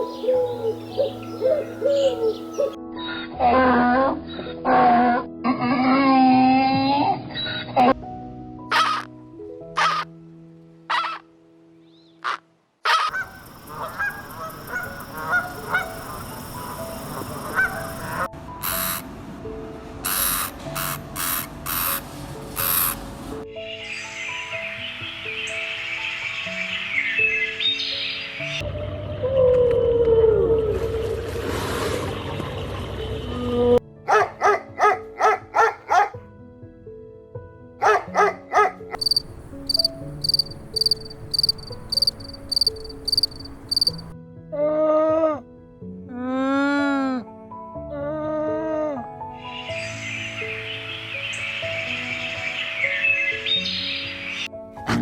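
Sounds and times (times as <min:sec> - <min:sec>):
soft background music: 0:00.0 - 0:55.0
dog barking: 0:08.7 - 0:09.0, 0:09.8 - 0:10.0, 0:10.9 - 0:11.2, 0:12.2 - 0:16.0, 0:17.5 - 0:18.2, 0:34.1 - 0:36.2, 0:37.8 - 0:39.0
waterfowl calling: 0:12.2 - 0:16.8
insect chirping: 0:13.1 - 0:19.0, 0:39.0 - 0:44.1.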